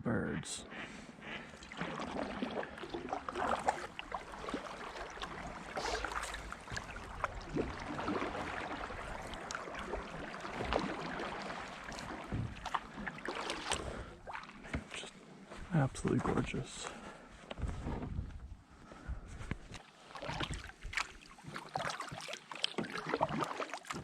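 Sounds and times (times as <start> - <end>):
paddle strokes splashing in water: 0.7 - 15.0, 19.7 - 24.0.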